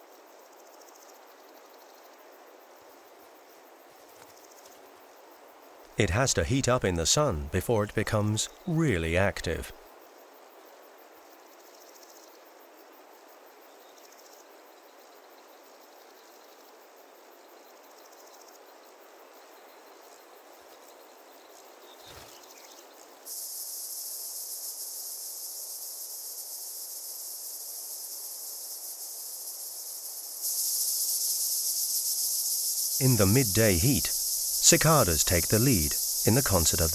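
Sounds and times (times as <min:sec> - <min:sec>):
faint insect chirping: 0:00.0 - 0:36.9
loud cicada chorus: 0:21.1 - 0:36.9.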